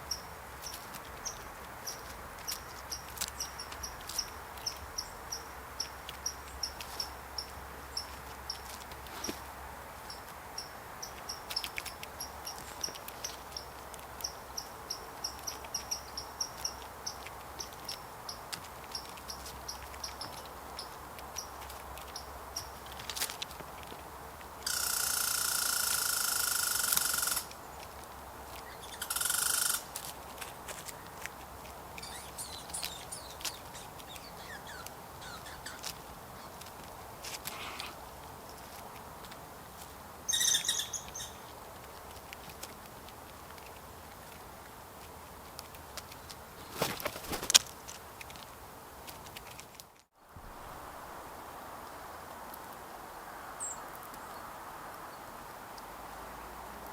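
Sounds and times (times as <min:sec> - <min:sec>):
crickets chirping: 0:24.7 - 0:27.5
harsh rasping calls: 0:28.6 - 0:29.9, 0:32.0 - 0:36.6.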